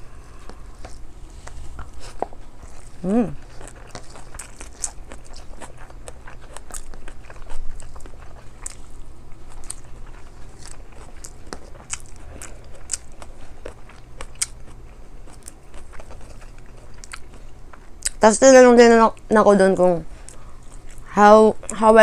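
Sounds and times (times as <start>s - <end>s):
wet chewing and mouth clicks: 0.4s - 18.3s, 20.2s - 21.9s.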